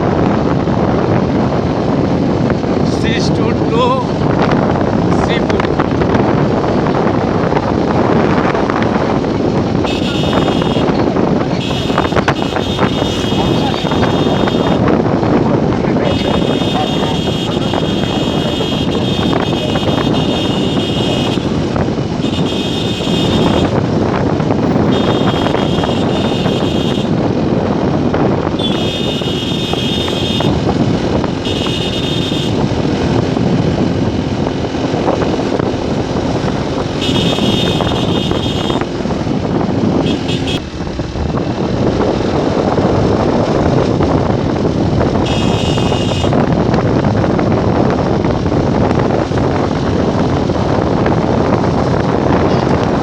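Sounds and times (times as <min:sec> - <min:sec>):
motorcycle riding: 0:00.0 - 0:53.0
wind and road noise: 0:00.0 - 0:53.0
vehicle horn honking: 0:09.8 - 0:14.8, 0:16.0 - 0:23.8, 0:24.6 - 0:27.2, 0:28.6 - 0:30.6, 0:31.4 - 0:32.6, 0:37.0 - 0:38.9, 0:40.0 - 0:40.6, 0:45.2 - 0:46.4.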